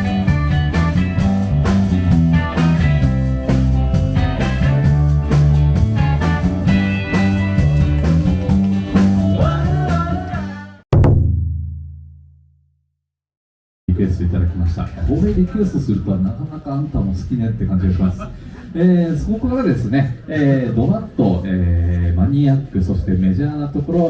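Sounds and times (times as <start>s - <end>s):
live rock band playing: 0.0s - 10.6s.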